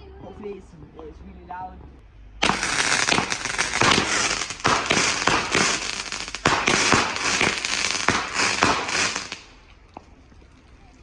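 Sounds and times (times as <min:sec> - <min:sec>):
firework crackling with sharp bangs: 0:02.4 - 0:09.7.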